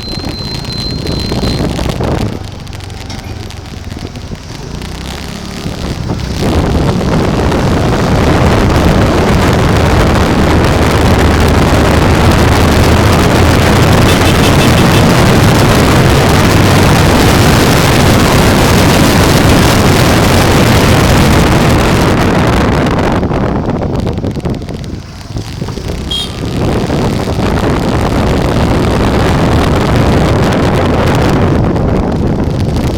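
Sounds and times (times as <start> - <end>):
low road rumble: 0.0 - 32.9
wind buffeting microphone: 0.0 - 32.9.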